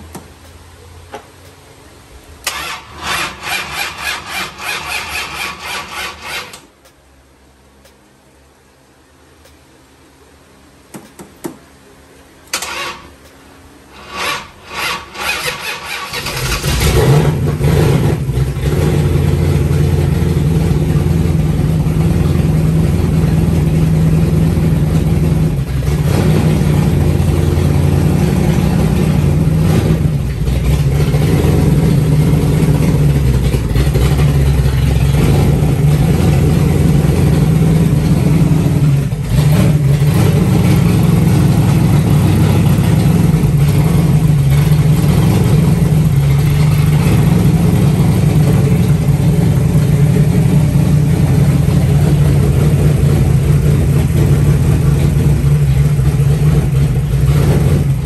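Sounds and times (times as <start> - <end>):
engine cranking: 2.4 - 6.6, 14.0 - 21.0
car engine running steadily: 16.0 - 58.0.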